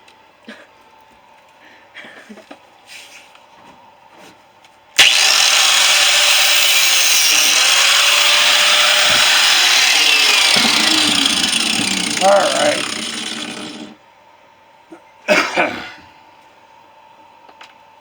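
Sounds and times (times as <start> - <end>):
angle grinder cutting steel: 5.0 - 14.0.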